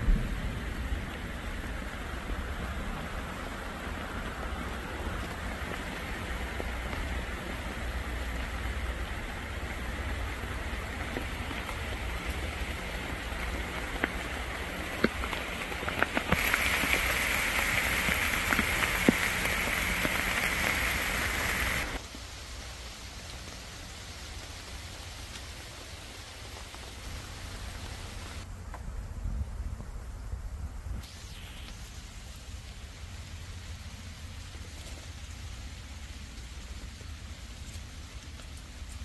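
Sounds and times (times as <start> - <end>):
heavy rain on leaves: 0.0 - 29.0, 30.4 - 39.0.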